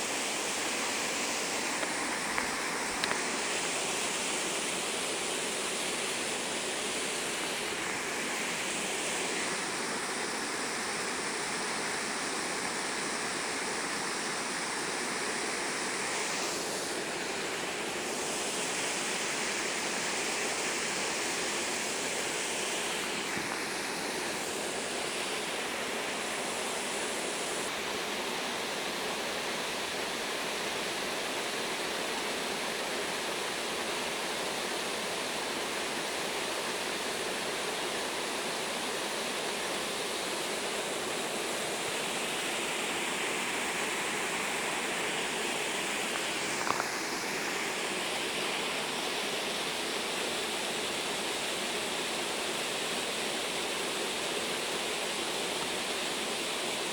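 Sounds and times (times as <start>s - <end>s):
stream water rushing: 0.0s - 56.9s.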